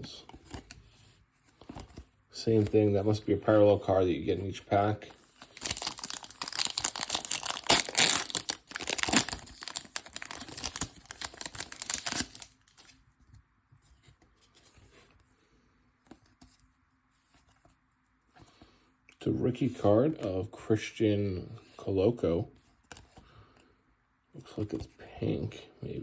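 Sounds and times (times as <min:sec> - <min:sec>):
wrapper tearing and crinkling: 0:05.4 - 0:12.8
cards clicking and rustling: 0:05.4 - 0:13.0.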